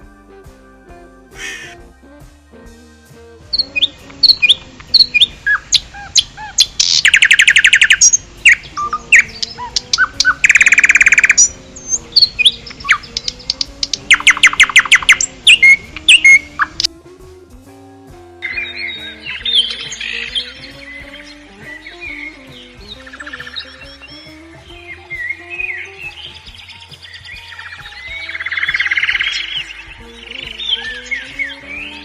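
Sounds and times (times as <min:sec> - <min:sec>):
soft background music: 0:00.0 - 0:32.0
songbird singing: 0:00.0 - 0:32.0.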